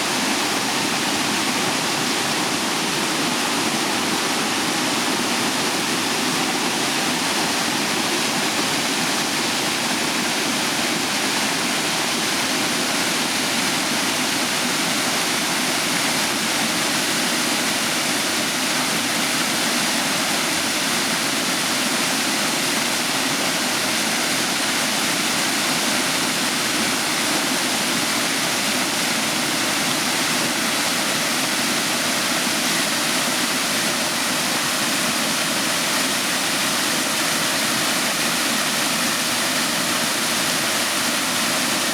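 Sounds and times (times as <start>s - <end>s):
waterfall pouring: 11.0s - 41.9s.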